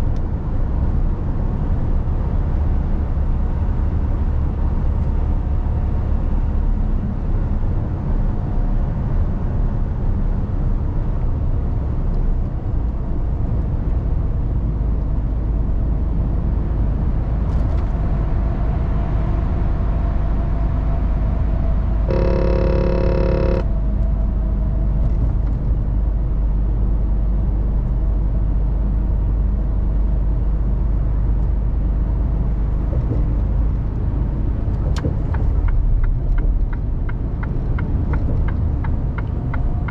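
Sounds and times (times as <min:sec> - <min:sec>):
truck engine and road rumble: 0:00.0 - 0:39.9
pitched tone: 0:22.1 - 0:23.6.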